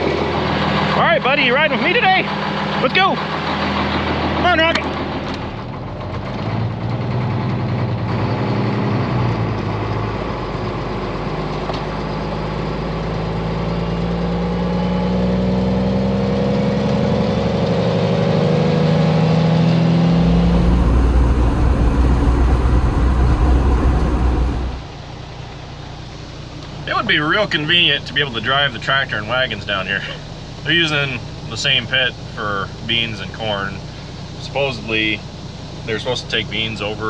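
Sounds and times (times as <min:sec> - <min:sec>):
heavy low rumble with hiss: 0:20.1 - 0:25.0
truck engine accelerating: 0:20.1 - 0:25.0.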